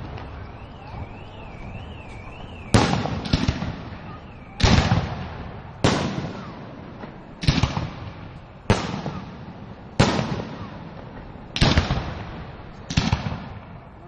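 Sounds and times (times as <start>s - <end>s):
aerial fireworks bangs: 2.7s - 13.6s.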